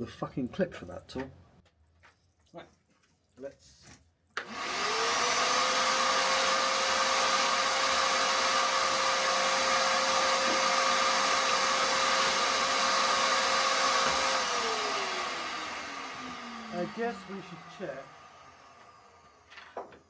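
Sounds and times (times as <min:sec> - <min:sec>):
table saw running: 0:04.4 - 0:20.0.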